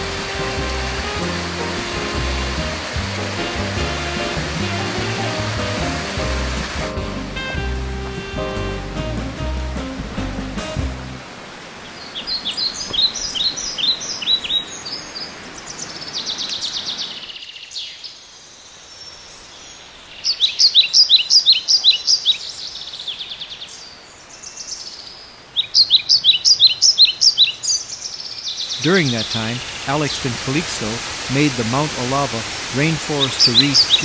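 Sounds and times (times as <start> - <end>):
background hiss: 0.0 - 34.0
bird chirping: 32.8 - 34.0.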